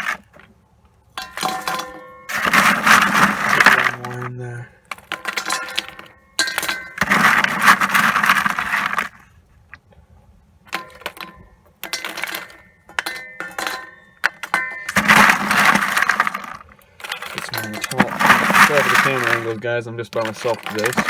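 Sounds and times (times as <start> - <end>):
coal clattering into steel forge: 0.0 - 0.4, 1.2 - 9.2, 10.7 - 21.0
coal lumps clinking on steel: 0.0 - 0.5, 1.1 - 9.3, 10.7 - 21.0.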